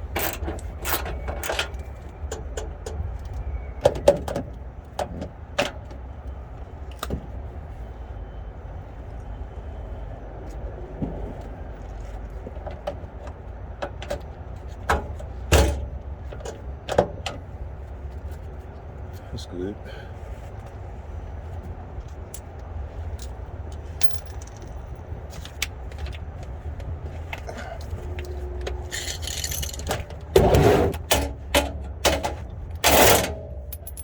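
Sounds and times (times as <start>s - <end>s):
steady low rumble: 20.1s - 34.0s
metallic clicks and knocks: 24.0s - 24.8s, 28.1s - 30.3s, 31.0s - 34.0s.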